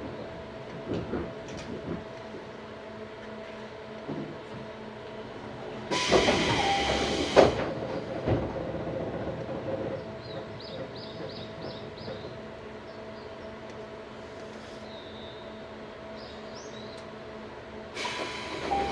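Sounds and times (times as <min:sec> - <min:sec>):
train door air hiss: 0:05.9 - 0:07.7, 0:18.0 - 0:18.9.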